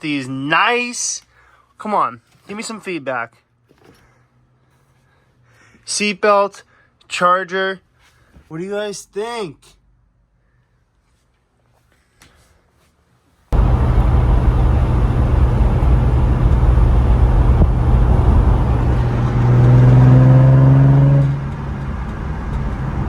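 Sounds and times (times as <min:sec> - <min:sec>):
car engine and exhaust: 0:13.6 - 0:23.0.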